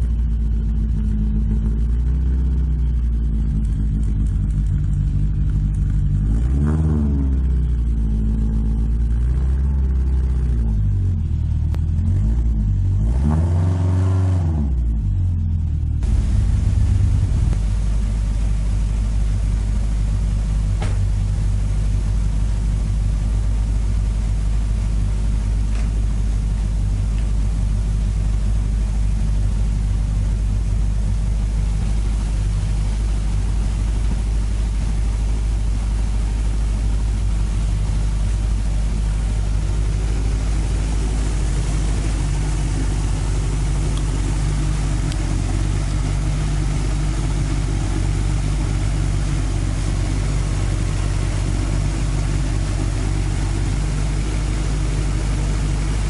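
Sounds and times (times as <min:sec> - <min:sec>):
engine idling: 0:00.0 - 0:56.0
bright hiss: 0:16.0 - 0:56.0.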